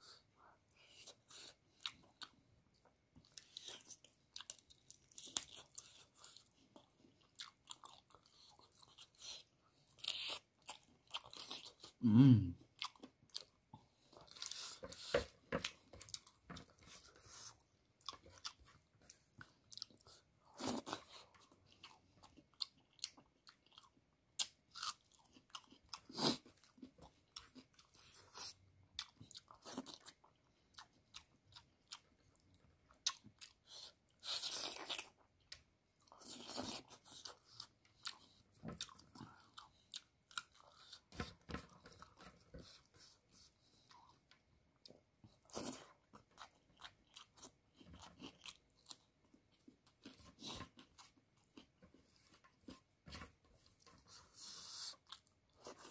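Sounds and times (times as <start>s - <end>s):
person chewing and crunching: 0.8s - 52.9s, 53.5s - 55.9s
short low vocal sound: 12.0s - 12.6s.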